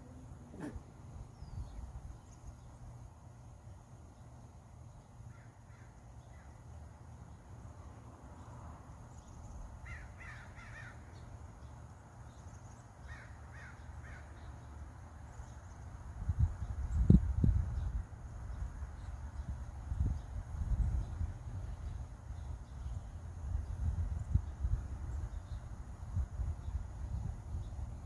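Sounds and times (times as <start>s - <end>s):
bird cawing: 5.3s - 6.5s, 9.8s - 11.1s, 13.0s - 14.4s.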